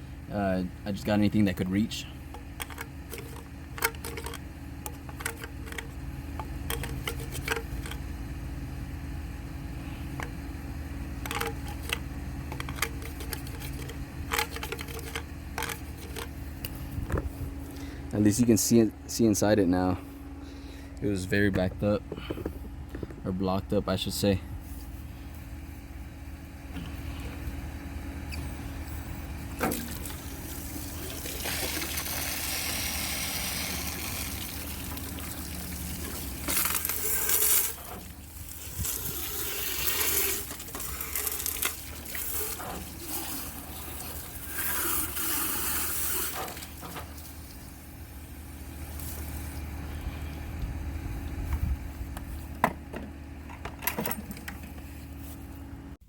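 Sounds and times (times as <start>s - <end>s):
steady low hum: 0.0s - 56.0s
knocks and clicks of plumbing parts: 2.3s - 8.0s, 11.2s - 17.3s, 22.1s - 23.2s, 51.5s - 54.9s.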